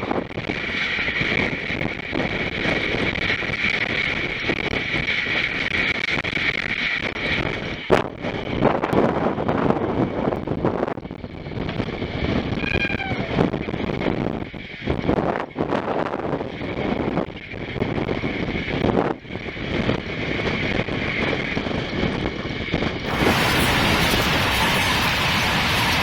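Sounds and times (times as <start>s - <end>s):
wind buffeting microphone: 0.0s - 26.0s
steady high whine: 11.8s - 13.9s, 23.0s - 26.0s
train wheels rumbling on track: 19.4s - 26.0s.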